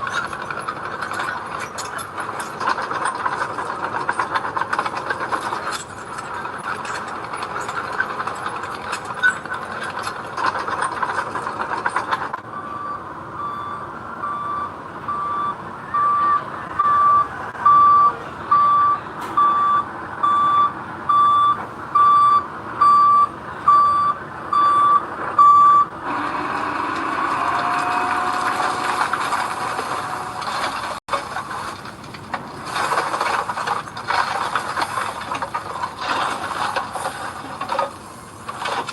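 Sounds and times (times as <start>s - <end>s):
heavy vehicle engine running: 0.0s - 38.9s
back-up alarm beeping: 12.5s - 25.9s.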